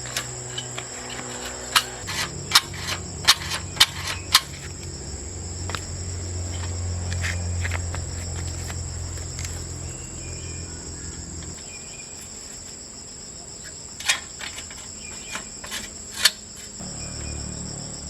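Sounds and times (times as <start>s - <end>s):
low hum: 0.0s - 11.6s, 16.8s - 18.0s
insect chirring: 0.0s - 18.0s.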